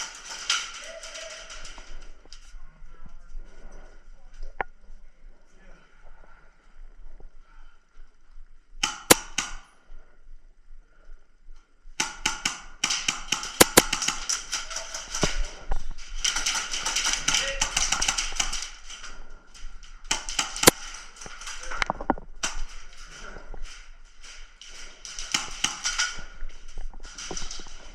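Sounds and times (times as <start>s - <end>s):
airsoft guns firing: 8.8s - 9.7s, 12.0s - 19.3s, 20.0s - 21.8s, 22.4s - 23.2s, 24.2s - 26.4s.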